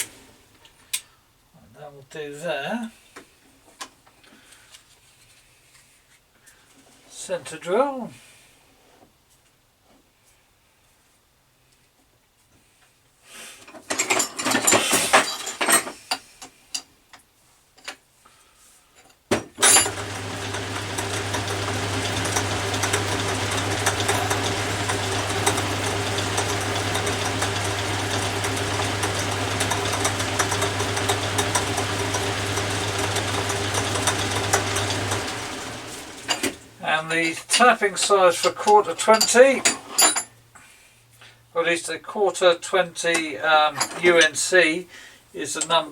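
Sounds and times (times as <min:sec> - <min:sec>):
metal tools clattering: 0:13.9 - 0:16.0, 0:37.3 - 0:40.3
metal lathe motor humming: 0:19.6 - 0:36.8.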